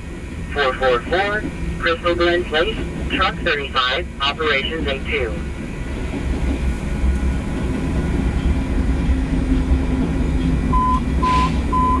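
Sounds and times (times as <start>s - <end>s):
freight train rumbling past: 0.0s - 12.0s
short high beeps: 10.8s - 12.0s.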